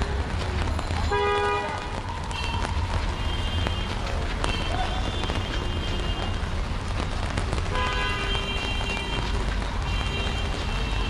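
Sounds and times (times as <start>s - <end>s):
deep rumble of traffic: 0.0s - 11.0s
rain hissing on street: 0.0s - 11.0s.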